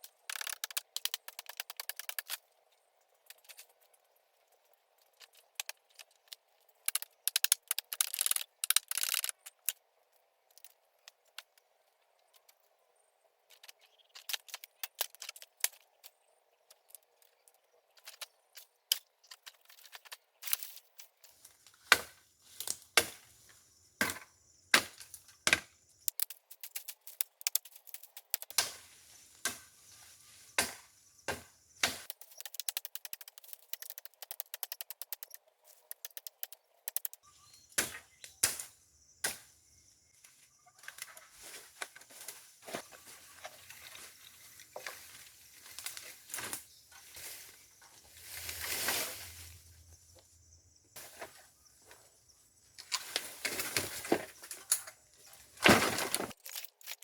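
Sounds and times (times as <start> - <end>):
small ticks: 0.0 - 2.4, 26.0 - 28.6, 32.0 - 37.2
bamboo knocks and cracks: 21.4 - 23.3, 24.0 - 35.2, 37.8 - 39.5, 52.8 - 55.0, 55.6 - 57.0
brushy rustle: 40.2 - 50.1, 51.0 - 56.5.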